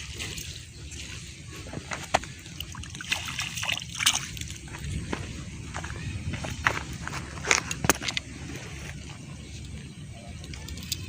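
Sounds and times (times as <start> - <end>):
shallow water splashing: 1.6 - 5.0.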